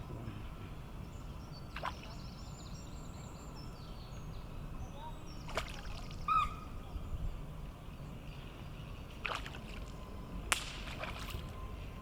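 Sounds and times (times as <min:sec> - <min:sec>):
sharp splashes: 0:05.5 - 0:06.2, 0:09.2 - 0:09.9, 0:10.5 - 0:11.6.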